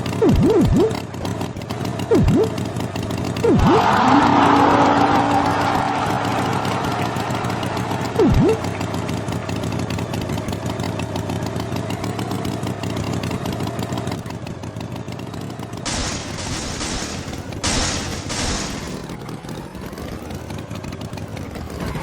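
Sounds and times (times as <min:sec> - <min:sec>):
tractor engine puttering: 0:00.0 - 0:22.0
loud hiss bursts: 0:15.9 - 0:19.1.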